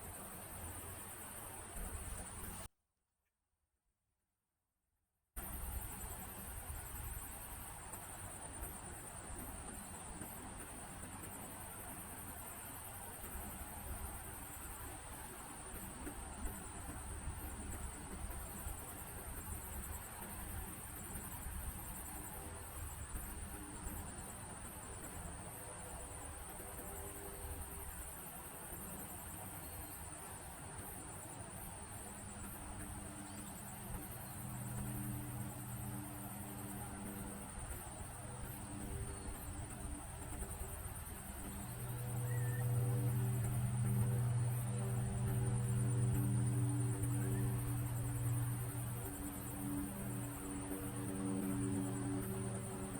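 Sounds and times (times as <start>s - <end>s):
crickets chirring: 5.4s - 52.9s
low steady rumble: 31.0s - 52.9s.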